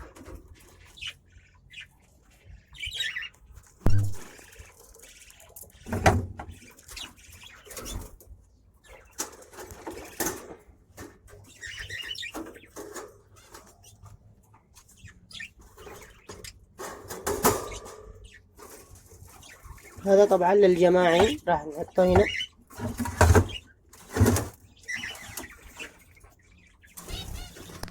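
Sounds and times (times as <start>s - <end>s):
parrots chirping: 0.6s - 8.2s, 8.8s - 10.6s, 11.4s - 23.8s, 24.4s - 27.9s
knocks and rustles in cage: 5.5s - 14.8s, 15.6s - 20.0s, 20.9s - 26.1s.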